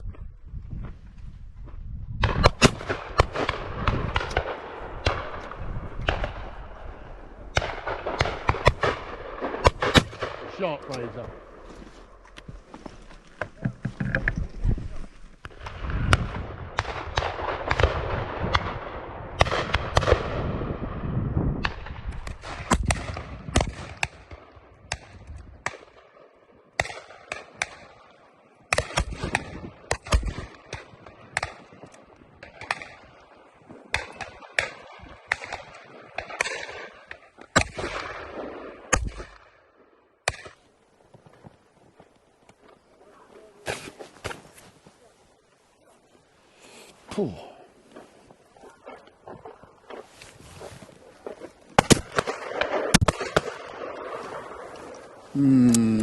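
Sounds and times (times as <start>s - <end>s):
shotguns firing: 2.2s - 6.9s, 7.5s - 11.6s, 15.5s - 20.5s, 33.9s - 39.5s, 51.2s - 54.7s.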